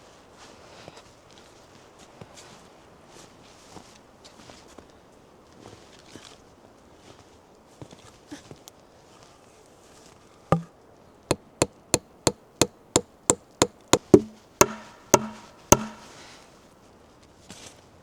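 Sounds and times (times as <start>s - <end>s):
hand tool striking wood: 11.3s - 16.2s.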